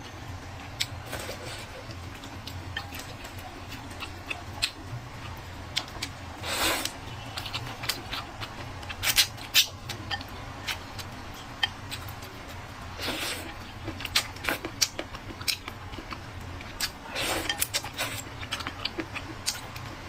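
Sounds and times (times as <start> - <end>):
steady low hum: 0.0 - 20.0
chewing clicks and smacks: 13.5 - 19.9.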